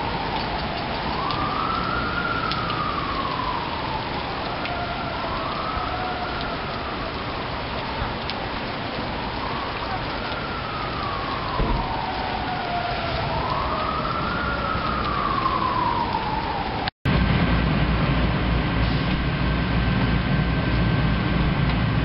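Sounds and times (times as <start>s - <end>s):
wailing emergency siren: 0.0s - 17.0s
rushing rain or water: 0.0s - 22.0s
low rumble: 16.1s - 22.0s.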